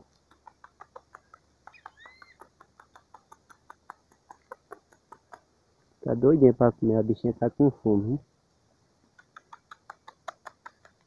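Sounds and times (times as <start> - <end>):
bird bill clicking: 0.0 - 5.6, 9.0 - 11.0
young bird chirp: 0.8 - 5.5.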